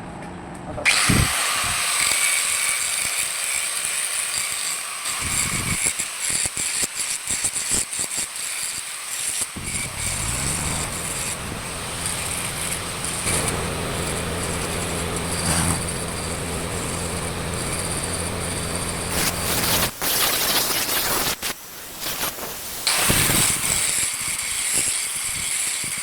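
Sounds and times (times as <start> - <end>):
welding arc crackling: 0.9 - 26.0
low hum: 9.6 - 20.0.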